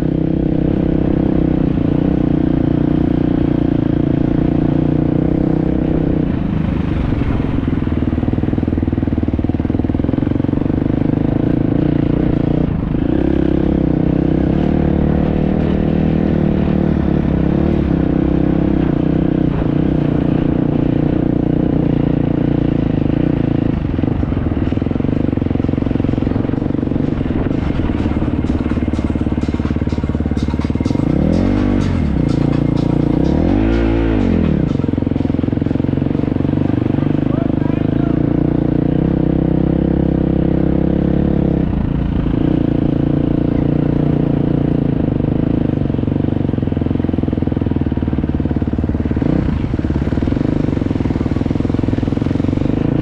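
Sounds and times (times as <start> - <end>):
motorcycle engine running: 0.0 - 53.0
rattling and clatter: 23.3 - 37.5.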